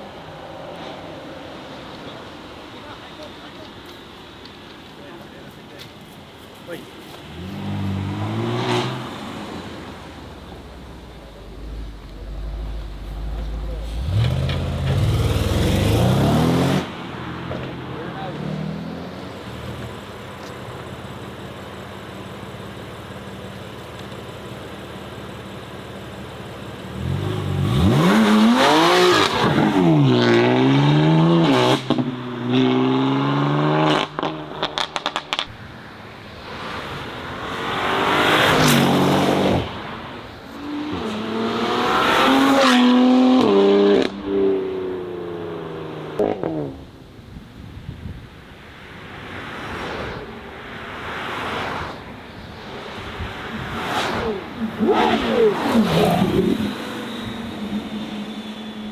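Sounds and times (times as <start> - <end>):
car engines accelerating hard: 7.2 - 47.3, 49.2 - 58.9
exhaust crackles and pops: 9.9 - 16.0, 19.4 - 27.2, 34.0 - 35.7.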